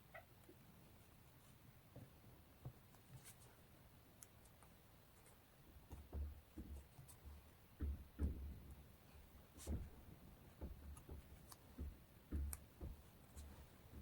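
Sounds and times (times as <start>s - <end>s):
soft knocks on a desk: 7.8s - 8.7s, 9.6s - 14.0s.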